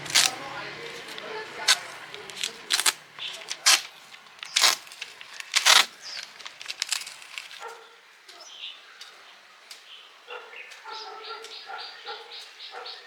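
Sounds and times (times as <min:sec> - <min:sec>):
sharp clicks: 0:01.1 - 0:07.6
animal calling: 0:10.3 - 0:13.0.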